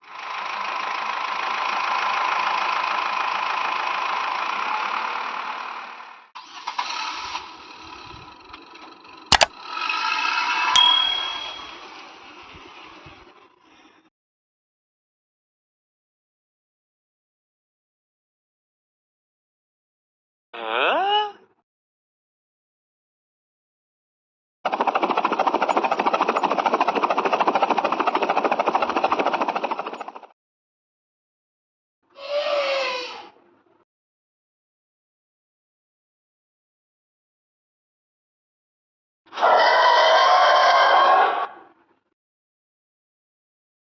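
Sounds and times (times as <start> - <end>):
sharp double click: 9.3 - 9.5, 10.8 - 11.8
ringing ding: 10.8 - 11.8.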